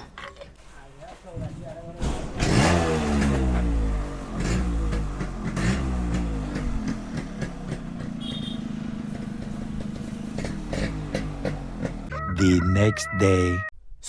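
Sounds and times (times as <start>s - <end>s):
two-stroke motorcycle engine revving: 2.0s - 12.1s.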